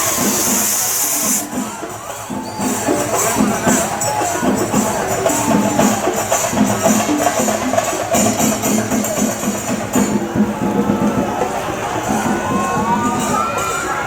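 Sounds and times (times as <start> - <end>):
jingling metal strokes: 0.0 - 13.9
drumming: 0.0 - 14.0
wavering melodic line: 0.1 - 14.0.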